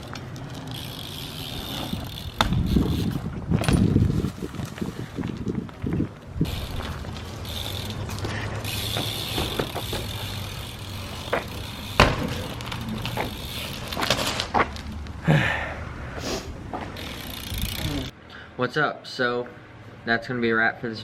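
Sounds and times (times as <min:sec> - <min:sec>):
bike clicks and knocks: 0:00.0 - 0:15.2, 0:16.7 - 0:18.1
bike tyres rolling on pavement: 0:00.0 - 0:18.1
bike landing bang: 0:02.0 - 0:04.0, 0:08.9 - 0:10.3, 0:11.2 - 0:13.4.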